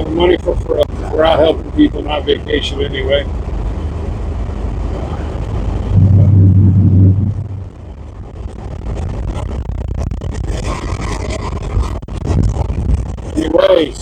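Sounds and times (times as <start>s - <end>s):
car road and engine noise: 0.0s - 10.5s
low rumble: 3.2s - 9.0s.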